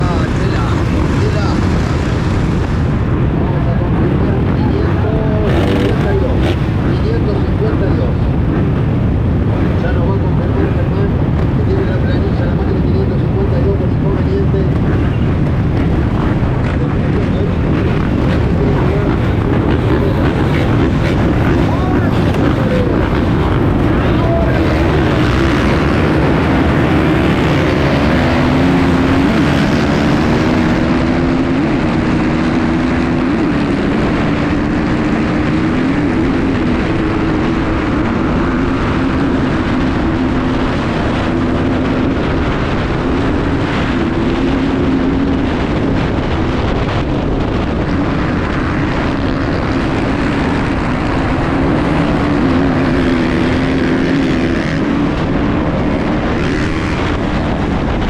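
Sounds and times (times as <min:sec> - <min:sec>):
dirt bike engine revving: 0:04.1 - 0:07.7, 0:14.7 - 0:46.0, 0:48.3 - 0:58.0.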